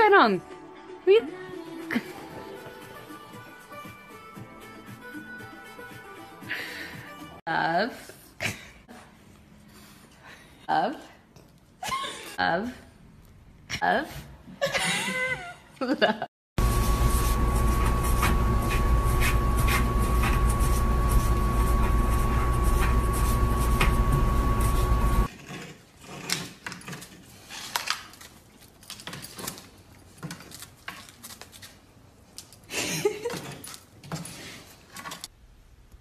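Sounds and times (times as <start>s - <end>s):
loud hum with high whine: 16.6s - 25.3s.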